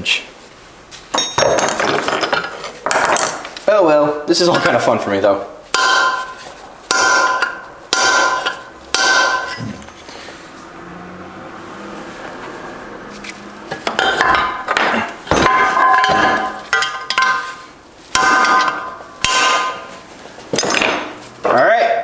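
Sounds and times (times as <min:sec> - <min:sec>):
metal tools clanking: 0:01.1 - 0:03.6, 0:08.4 - 0:10.0, 0:13.7 - 0:21.6.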